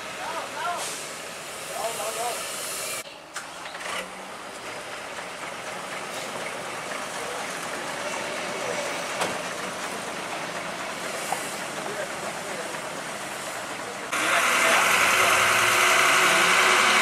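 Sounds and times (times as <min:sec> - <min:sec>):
heavy machinery running: 0:03.7 - 0:17.0.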